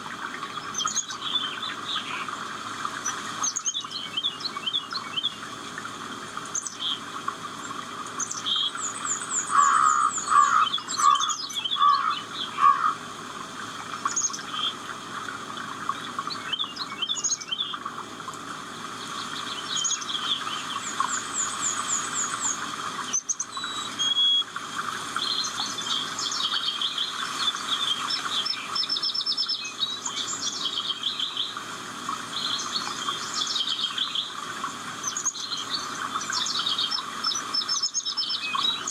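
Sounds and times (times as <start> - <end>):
birds chirping and trilling: 0.2 - 5.5, 7.7 - 13.0, 15.8 - 17.9, 19.0 - 24.4, 25.2 - 31.6, 32.3 - 34.4, 35.0 - 38.9.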